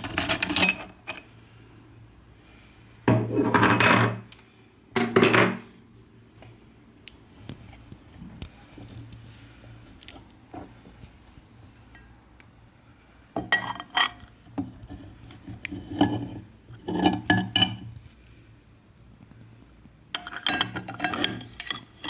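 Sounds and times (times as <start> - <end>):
kitchenware clinking and scraping: 0.0 - 1.3, 3.1 - 4.4, 5.0 - 5.8, 13.4 - 14.2, 14.8 - 17.9, 20.2 - 22.0.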